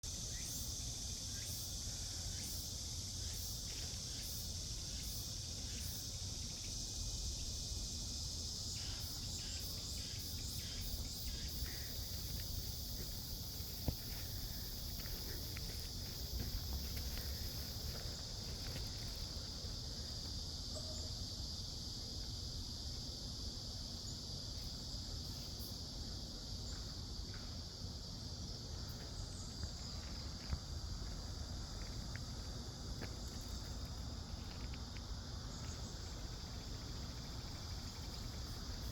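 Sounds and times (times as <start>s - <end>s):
short pulsing insect call: 0.0s - 22.2s, 32.7s - 38.9s
cicadas buzzing: 0.0s - 38.9s.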